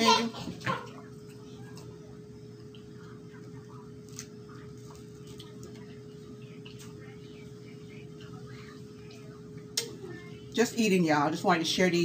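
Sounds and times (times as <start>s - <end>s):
steady low hum: 0.0s - 12.0s
close chewing and mouth sounds: 2.6s - 7.2s.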